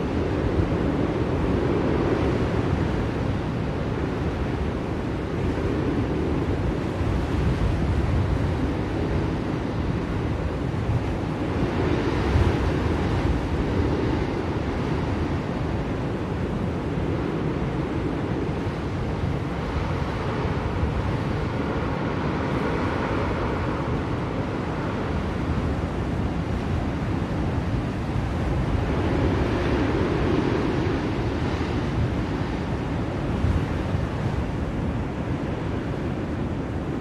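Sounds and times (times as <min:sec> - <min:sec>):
blizzard wind rushing: 0:00.0 - 0:37.0.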